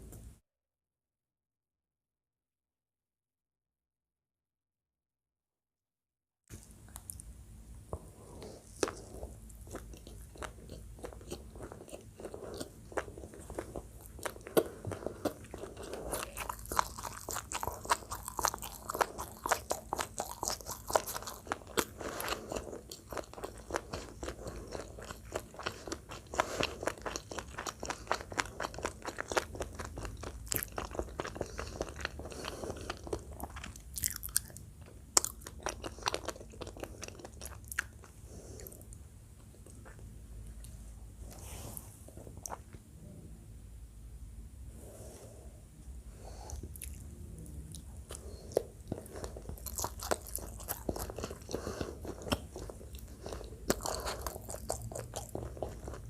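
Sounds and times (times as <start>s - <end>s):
person chewing crunchy food: 6.5s - 7.3s, 7.9s - 42.8s, 46.2s - 56.0s.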